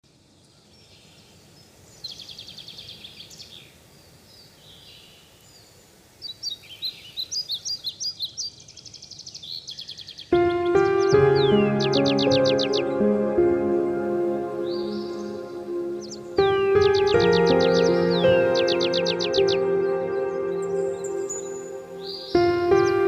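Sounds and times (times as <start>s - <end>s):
faint outdoor hiss: 0.0s - 23.0s
songbirds singing: 0.3s - 23.0s
music: 10.3s - 23.0s.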